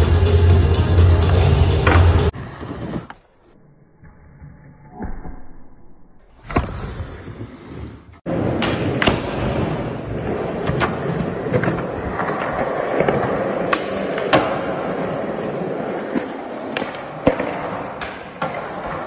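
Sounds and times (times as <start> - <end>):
skateboard wheels rolling on concrete: 0.0 - 3.3, 6.4 - 19.0.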